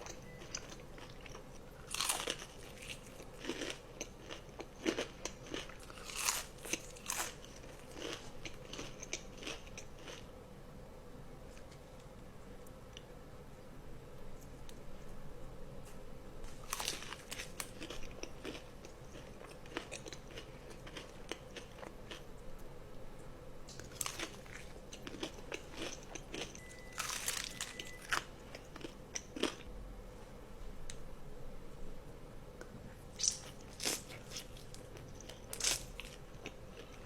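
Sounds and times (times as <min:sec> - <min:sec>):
crunchy food being chewed: 0:00.0 - 0:10.3, 0:16.4 - 0:22.3, 0:23.7 - 0:29.7, 0:33.1 - 0:37.0.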